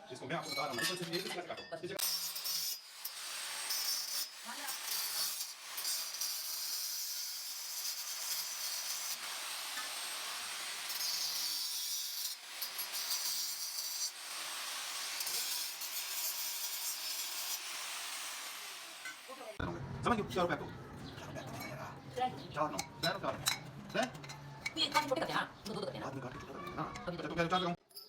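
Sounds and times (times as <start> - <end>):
hand saw cutting metal pipe: 2.0 - 19.5.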